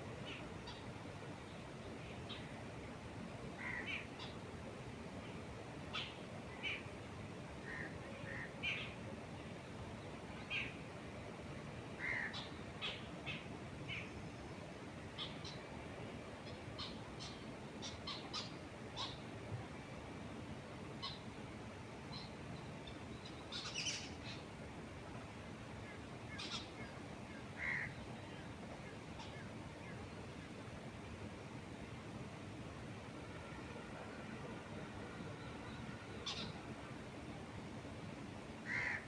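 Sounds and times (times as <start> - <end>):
wind through trees: 0.0 - 39.0.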